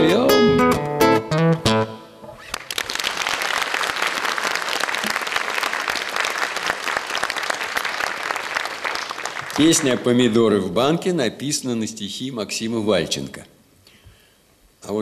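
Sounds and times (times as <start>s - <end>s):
guitar song: 0.0s - 2.6s
audience applauding: 2.4s - 10.2s.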